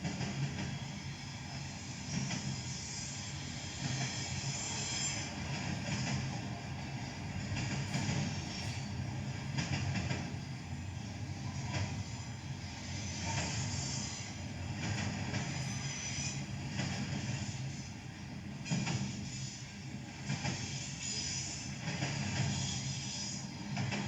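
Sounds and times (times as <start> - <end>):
diesel locomotives rumbling: 0.0 - 24.0
train wheels clacking on rails: 0.0 - 24.0.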